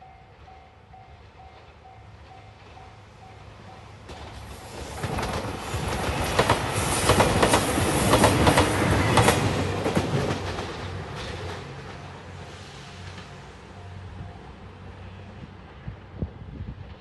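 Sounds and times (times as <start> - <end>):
train wheels clacking over joints: 4.0 - 12.2.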